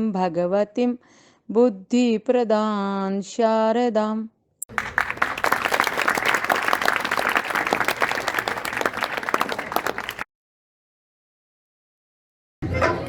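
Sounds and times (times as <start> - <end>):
audience applauding: 4.7 - 10.3.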